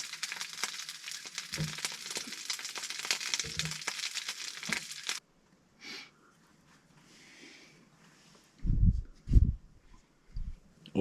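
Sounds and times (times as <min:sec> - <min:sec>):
sausages sizzling in a frying pan: 0:00.0 - 0:05.2
soft rustle: 0:06.2 - 0:10.6.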